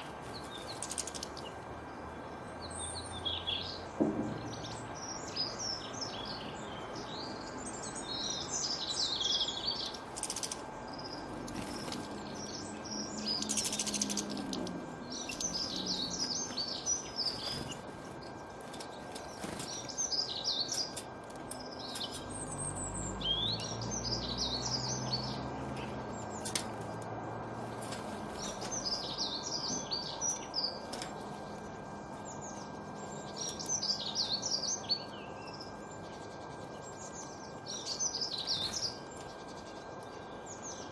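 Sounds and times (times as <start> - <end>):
songbirds warbling: 0.0 - 40.9.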